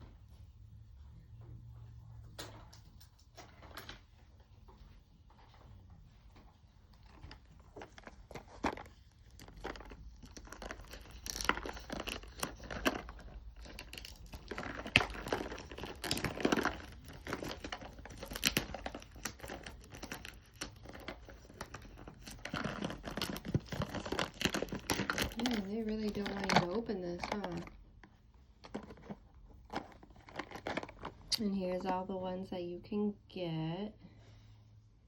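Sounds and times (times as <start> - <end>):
packaging crinkling and tearing: 6.9 - 31.9.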